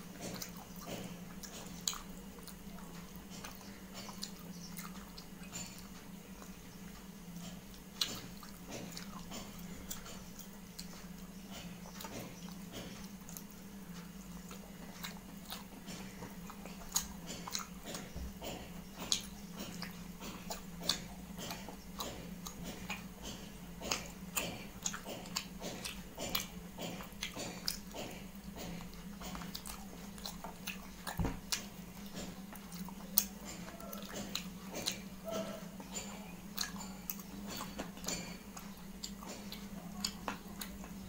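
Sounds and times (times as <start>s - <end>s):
person chewing food: 0.0s - 41.0s
steady low hum: 0.0s - 41.0s
wet mouth clicks: 14.5s - 35.1s.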